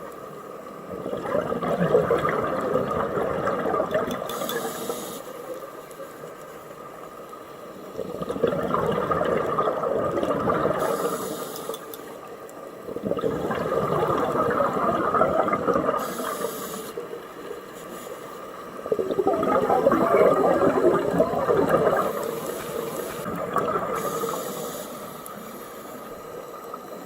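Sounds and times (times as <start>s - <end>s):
gurgling exhaled bubbles: 0.8s - 5.0s, 7.9s - 11.3s, 12.8s - 16.7s, 18.8s - 24.9s
regulator hiss on inhale: 4.2s - 6.3s, 10.8s - 12.2s, 15.9s - 18.8s, 21.9s - 27.0s.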